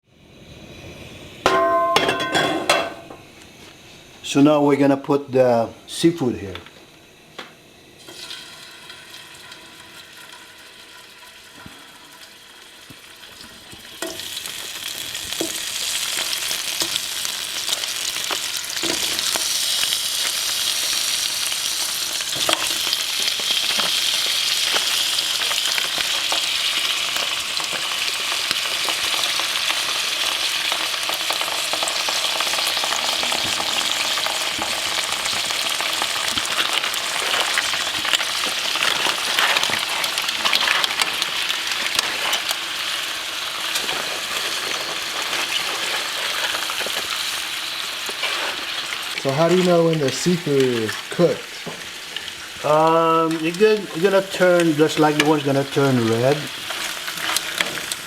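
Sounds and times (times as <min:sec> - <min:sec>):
utensil knocking in pan: 0:01.5 - 0:03.2
seafood sizzling in hot oil: 0:07.1 - 0:58.0.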